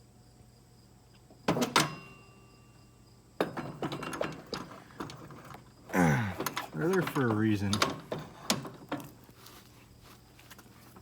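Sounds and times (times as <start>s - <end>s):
metal parts clicking and rattling: 6.4s - 9.2s.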